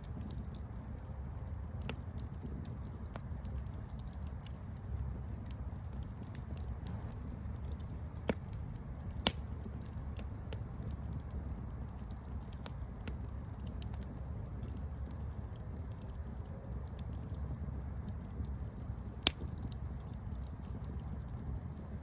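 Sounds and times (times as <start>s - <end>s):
campfire rumble and crackles: 0.0s - 22.0s
loud fire pops: 0.0s - 22.0s.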